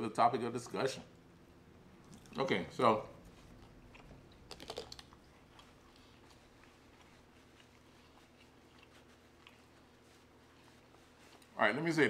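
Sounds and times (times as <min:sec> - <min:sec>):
chewing food: 0:01.9 - 0:02.5, 0:03.1 - 0:11.6
wet mouth clicks: 0:03.5 - 0:05.3.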